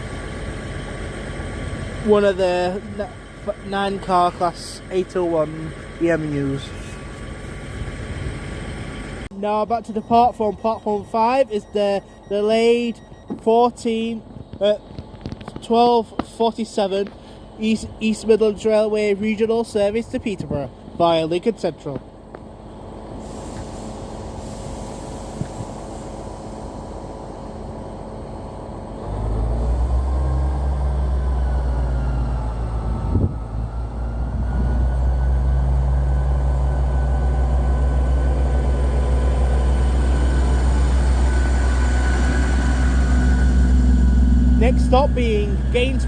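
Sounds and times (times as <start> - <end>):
diesel train engines droning: 0.0 - 46.0.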